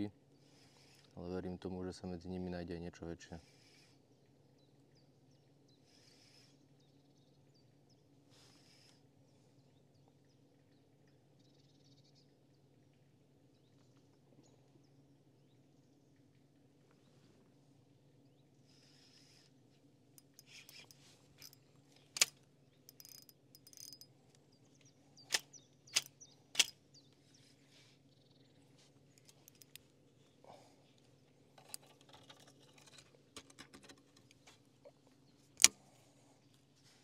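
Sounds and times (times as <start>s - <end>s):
faint low hum: 0.0s - 37.0s
fishing tackle clicks and rattling: 20.2s - 24.4s, 25.3s - 26.7s, 29.1s - 29.9s, 31.5s - 34.4s.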